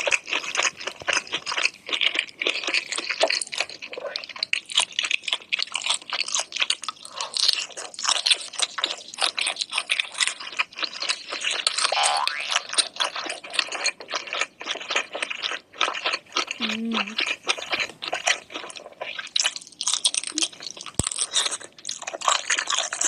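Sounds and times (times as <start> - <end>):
crunching and chewing seafood: 0.0 - 23.0.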